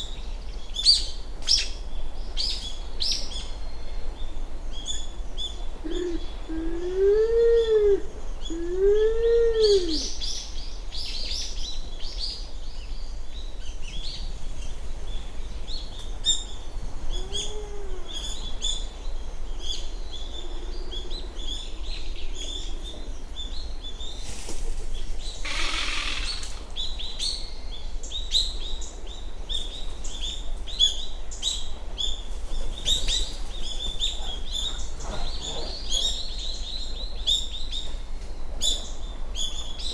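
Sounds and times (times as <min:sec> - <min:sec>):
pigeon cooing: 0:05.9 - 0:10.1, 0:17.2 - 0:18.3, 0:25.4 - 0:26.6
small birds chirping: 0:15.2 - 0:38.0
pigeon rattling growl: 0:25.4 - 0:26.7.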